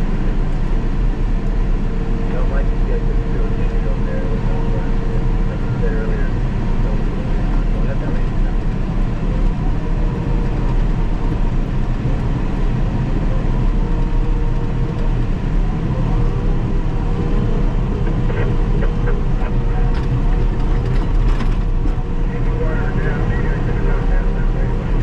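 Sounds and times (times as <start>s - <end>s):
bulldozer diesel engine running: 0.0s - 25.0s
steady whine: 0.0s - 25.0s
light clicks and clanks: 19.9s - 22.0s.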